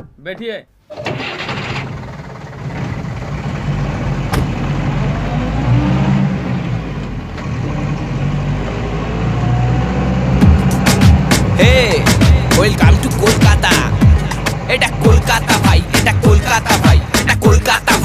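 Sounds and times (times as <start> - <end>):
car engine pulling away: 0.9 - 17.7
street traffic: 0.9 - 18.0
car door clunk: 4.3 - 4.6.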